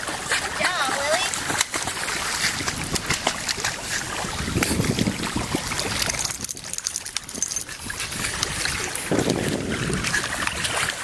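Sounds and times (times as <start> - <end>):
water lapping at shore: 0.0 - 11.0
wind buffeting microphone: 1.3 - 11.0.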